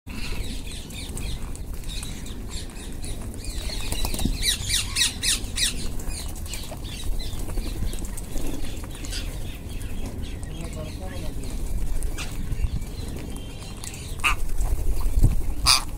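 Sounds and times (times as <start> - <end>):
parakeets squawking: 13.6 - 15.9.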